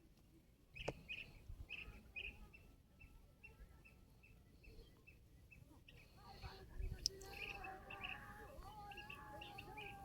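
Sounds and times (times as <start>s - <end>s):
bird chirping: 7.0s - 10.0s.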